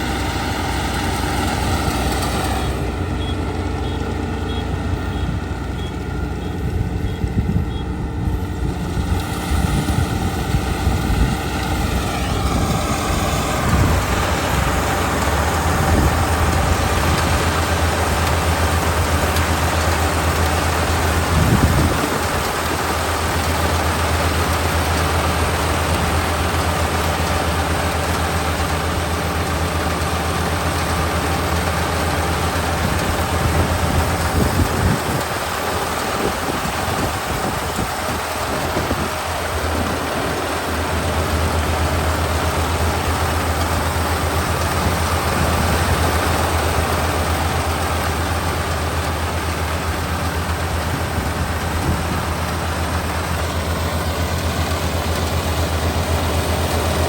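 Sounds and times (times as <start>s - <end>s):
rising mechanical whine: 0.0s - 17.5s
combine harvester engine running: 0.0s - 57.0s.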